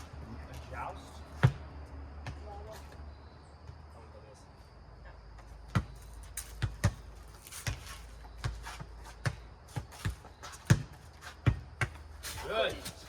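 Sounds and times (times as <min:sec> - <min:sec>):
ball bouncing and being struck: 0:05.7 - 0:08.6, 0:09.2 - 0:13.0.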